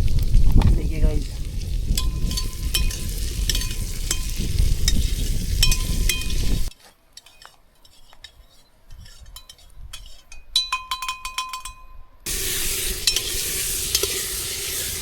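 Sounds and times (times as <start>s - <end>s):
food sizzling in a pot: 0.0s - 6.7s, 12.3s - 15.0s
metal utensils scraping a pot: 2.0s - 10.7s, 12.3s - 15.0s.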